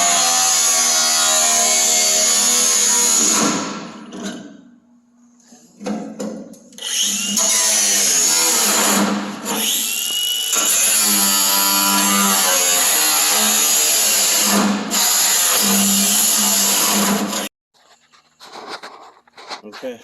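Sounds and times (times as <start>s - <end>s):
power tool cutting sheet metal: 0.0s - 4.1s, 6.8s - 17.5s.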